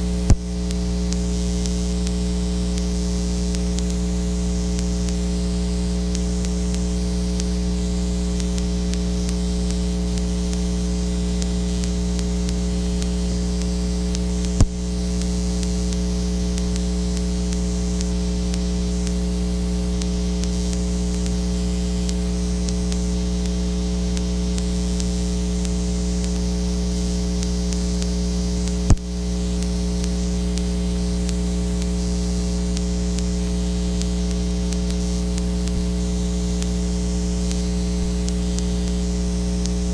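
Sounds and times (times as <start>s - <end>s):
electrical mains hum: 0.0s - 39.9s
sharp clicks: 11.4s - 16.0s, 28.7s - 31.9s.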